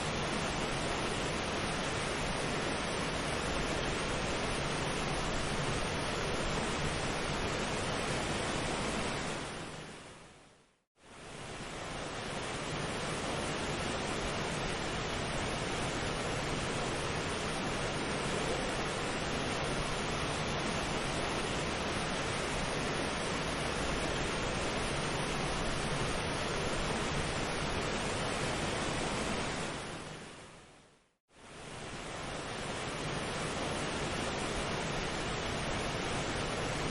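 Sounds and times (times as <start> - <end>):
steady surf-like rushing: 0.0 - 10.4
rushing water: 0.0 - 36.9.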